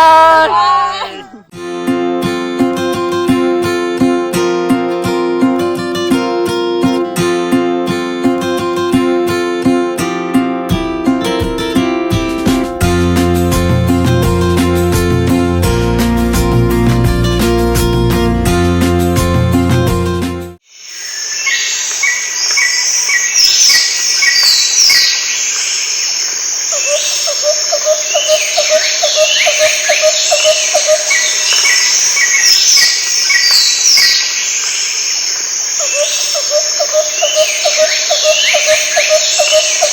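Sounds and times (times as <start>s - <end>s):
fast-pulsing insect or frog chirp: 20.6s - 39.9s
birds chirping and whistling: 21.0s - 39.9s.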